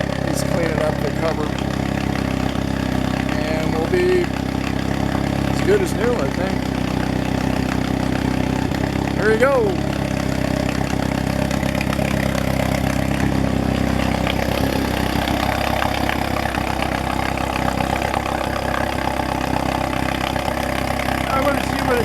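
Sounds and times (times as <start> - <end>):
outboard motor idling: 0.0 - 22.0.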